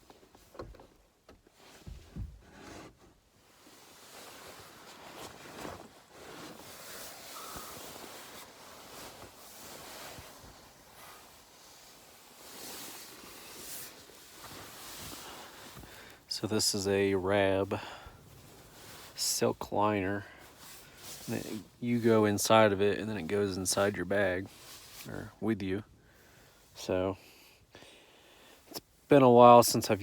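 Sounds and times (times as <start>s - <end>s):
fabric rustling: 1.5s - 16.1s, 20.4s - 21.8s, 23.8s - 25.3s
soft thumps and knocks: 1.8s - 2.9s.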